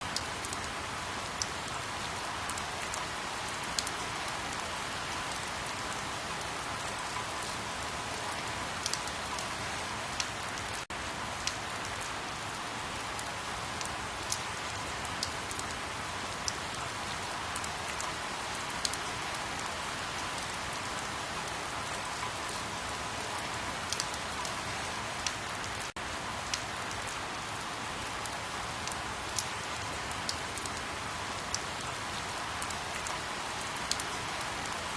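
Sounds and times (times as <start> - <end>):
steady rain hiss: 0.0 - 34.9
rain drop clicks: 15.1 - 15.8, 23.9 - 24.5.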